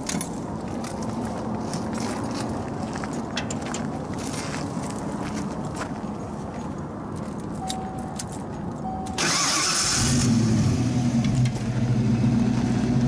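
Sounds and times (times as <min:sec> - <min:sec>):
short beeps: 0:07.6 - 0:08.2, 0:08.8 - 0:09.2
starter motor cranking: 0:09.2 - 0:10.4.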